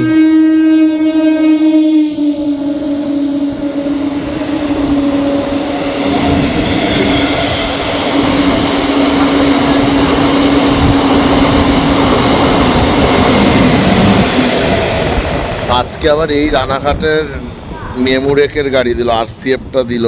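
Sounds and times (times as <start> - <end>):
electric train hum: 0.0 - 20.0
train wheels clattering on rail: 3.5 - 17.8.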